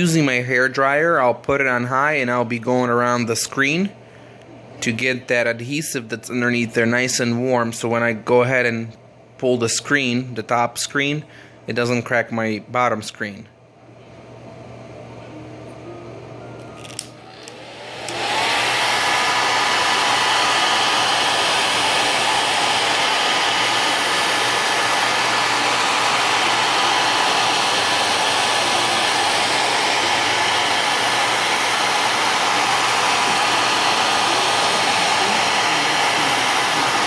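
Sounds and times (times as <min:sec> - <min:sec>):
hair dryer blowing: 0:16.8 - 0:37.0.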